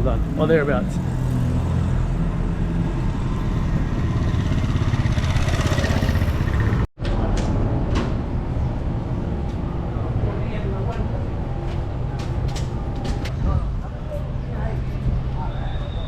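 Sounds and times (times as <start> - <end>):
vehicle engines running: 0.0 - 16.0
vehicle passing and speeding up: 0.1 - 6.9.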